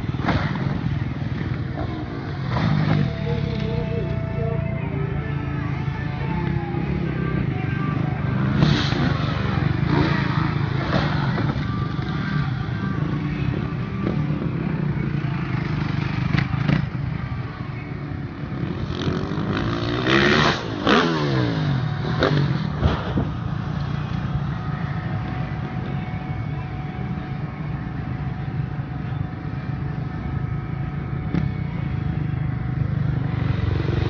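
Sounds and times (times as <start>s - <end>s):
dirt bike engines revving: 0.0s - 34.0s
dirt bike revving past: 18.6s - 23.6s.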